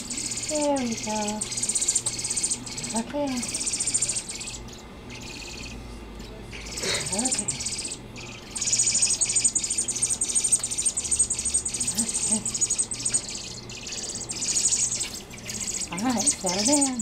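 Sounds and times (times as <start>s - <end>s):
fledgling birds begging calls: 6.5s - 17.0s.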